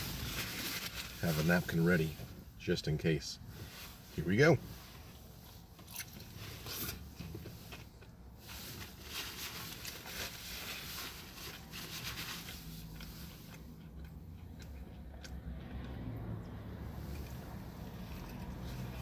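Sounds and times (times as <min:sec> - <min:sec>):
person chewing: 0:12.8 - 0:16.5.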